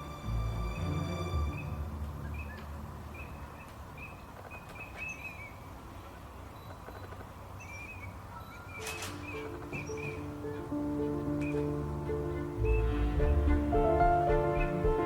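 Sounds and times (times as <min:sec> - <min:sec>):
soft music notes: 0:00.0 - 0:03.4, 0:09.1 - 0:15.0
small bird chirping: 0:01.6 - 0:05.8, 0:06.5 - 0:10.7.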